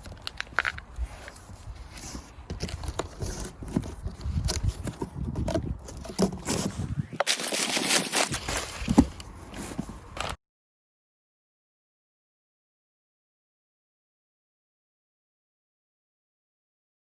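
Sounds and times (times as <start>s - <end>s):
handling knocks and clicks: 0.0s - 10.4s.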